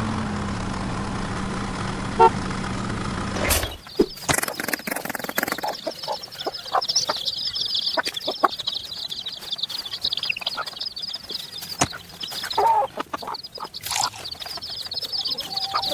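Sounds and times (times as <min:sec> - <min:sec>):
high chirping: 0:03.4 - 0:15.9
chickens clucking: 0:03.5 - 0:15.9.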